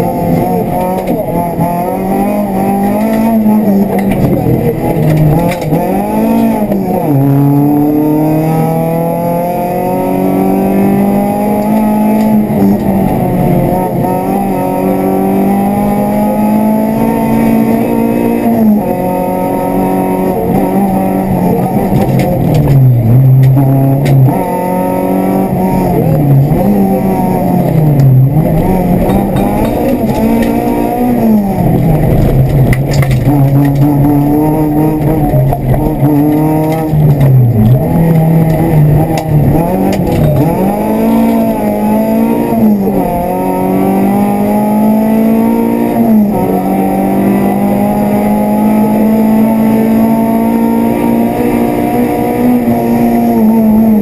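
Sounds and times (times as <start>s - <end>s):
rally car engine from inside cabin: 0.0s - 54.0s.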